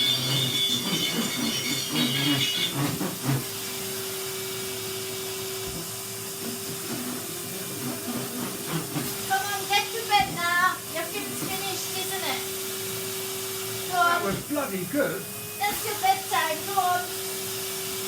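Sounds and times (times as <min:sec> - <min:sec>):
clattering and high ringing: 0:00.0 - 0:02.8.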